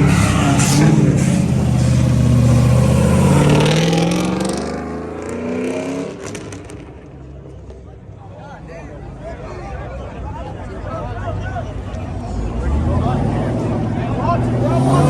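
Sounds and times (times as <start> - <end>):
car accelerating hard: 0.0 - 7.2, 12.3 - 15.0.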